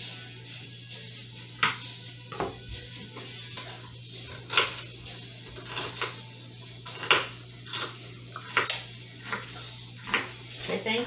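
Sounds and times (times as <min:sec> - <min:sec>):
knife chopping on cutting board: 0:01.6 - 0:02.7, 0:04.3 - 0:04.9, 0:06.8 - 0:10.4.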